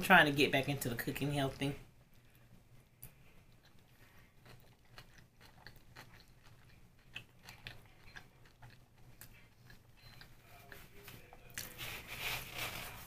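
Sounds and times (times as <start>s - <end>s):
closed-mouth chewing: 3.0s - 11.7s.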